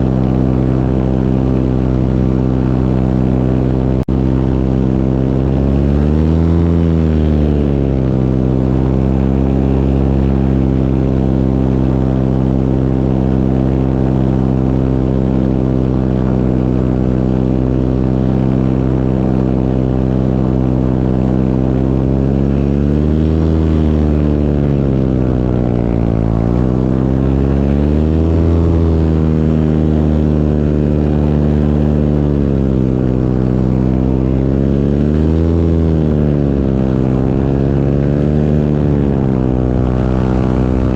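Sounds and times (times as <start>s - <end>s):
propeller engine in flight: 0.0s - 40.9s.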